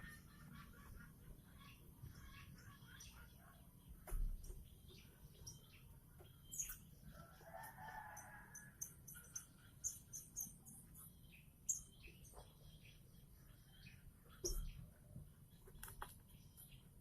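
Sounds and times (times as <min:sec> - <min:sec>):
faint rooster crowing: 0:07.1 - 0:09.2.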